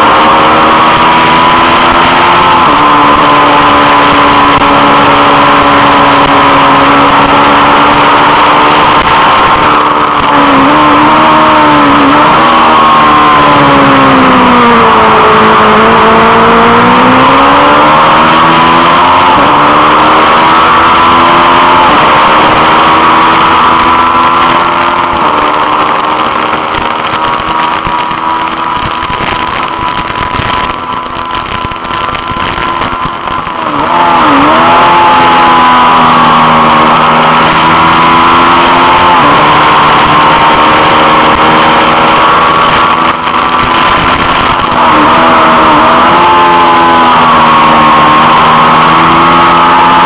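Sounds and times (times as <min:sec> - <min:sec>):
motorcycle engine revving: 0:00.0 - 0:50.0.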